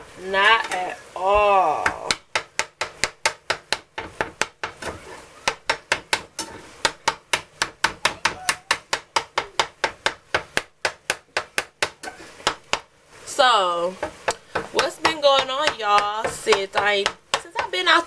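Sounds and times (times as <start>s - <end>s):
utensil striking a pan: 1.8s - 13.0s, 13.8s - 18.0s.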